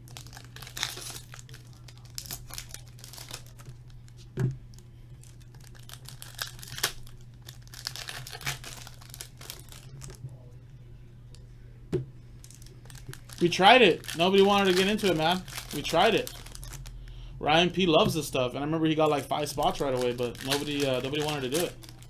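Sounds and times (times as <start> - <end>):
card wrappers crinkling and tearing: 0.0 - 10.2, 12.4 - 17.2, 18.1 - 22.0
cards being handled: 12.4 - 16.9, 19.1 - 22.0.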